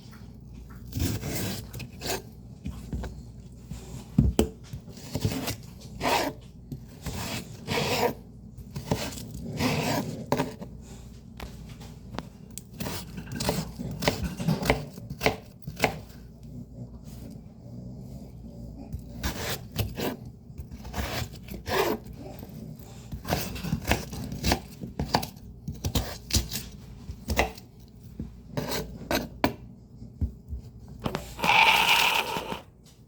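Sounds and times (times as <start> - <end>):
knife chopping greens: 0.9 - 2.2, 4.2 - 10.7, 12.6 - 16.2, 19.0 - 22.2, 23.1 - 27.7, 28.5 - 29.6.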